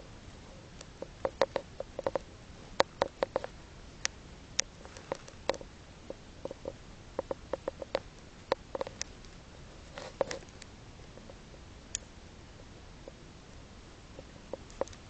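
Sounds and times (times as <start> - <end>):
budgie clicking: 0.8 - 5.6, 6.4 - 9.3.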